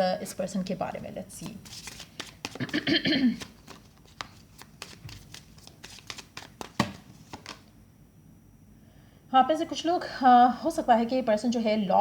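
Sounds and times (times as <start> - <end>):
cards clicking and snapping: 1.7 - 2.8, 3.4 - 7.7.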